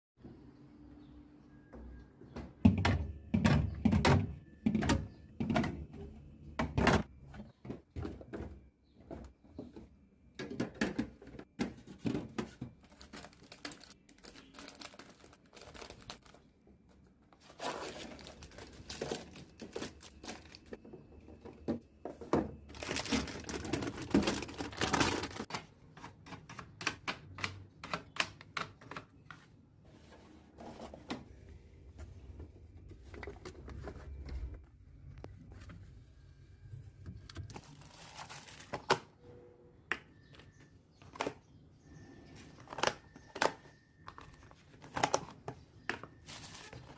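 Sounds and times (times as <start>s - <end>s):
plastic containers clicking and tapping: 2.5s - 13.8s
wrappers crinkling: 12.9s - 16.4s, 17.4s - 20.7s, 22.7s - 25.5s, 37.5s - 38.8s.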